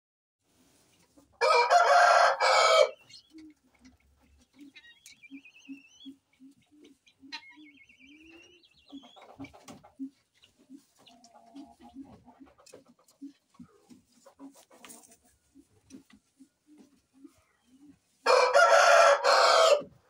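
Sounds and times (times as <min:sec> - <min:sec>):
poultry clucking and chirping: 0:00.5 - 0:20.0
rooster crowing: 0:01.4 - 0:03.0, 0:18.3 - 0:19.9.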